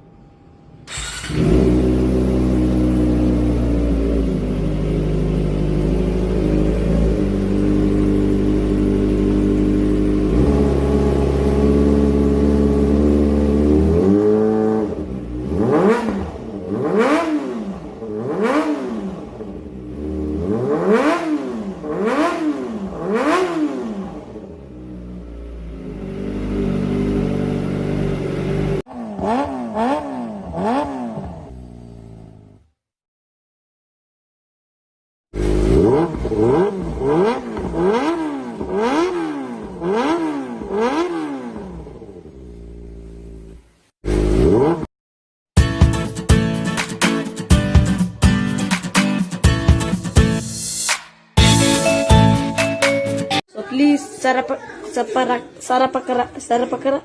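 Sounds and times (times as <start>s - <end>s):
motorcycle engine idling and revving: 0.9s - 32.9s, 35.3s - 44.9s.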